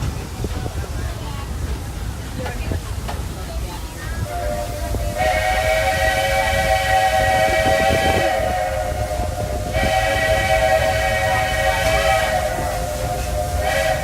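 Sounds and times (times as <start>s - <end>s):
rumble and hiss of moving train: 0.0s - 14.0s
steam locomotive chime whistle: 4.2s - 14.0s.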